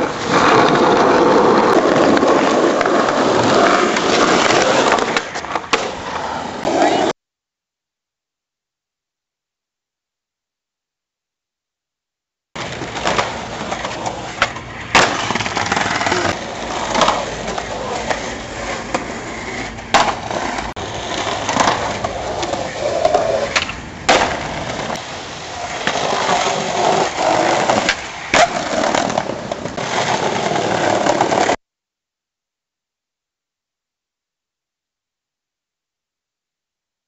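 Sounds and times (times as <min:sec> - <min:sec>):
skateboard clacks: 0:00.0 - 0:07.1, 0:12.6 - 0:31.6
skateboard wheels rolling: 0:00.0 - 0:07.2, 0:12.6 - 0:31.6.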